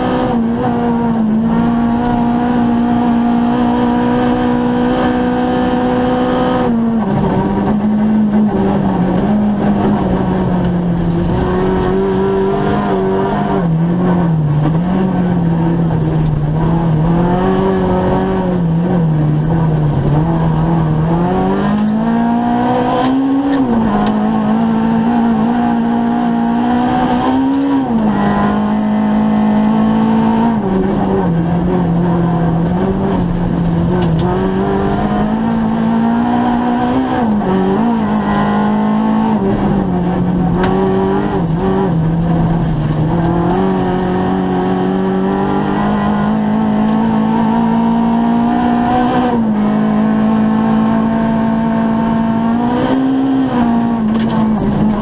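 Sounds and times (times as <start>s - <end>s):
rally car engine at high revs: 0.0s - 55.0s.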